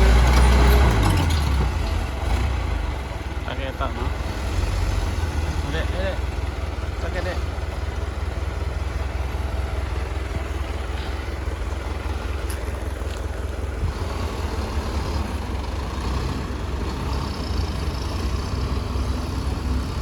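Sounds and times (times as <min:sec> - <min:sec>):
heavy diesel engine rumbling: 0:00.0 - 0:20.0.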